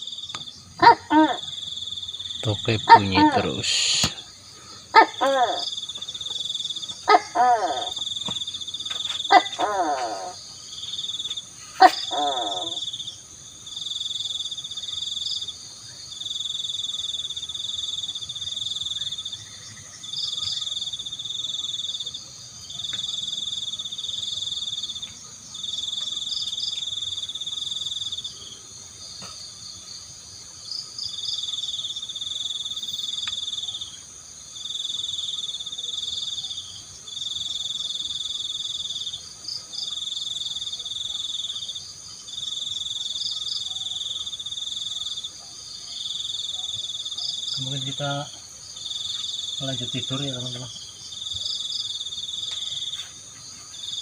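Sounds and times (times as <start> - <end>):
gecko calling: 0.0 - 15.4
frogs and insects trilling: 0.0 - 54.0.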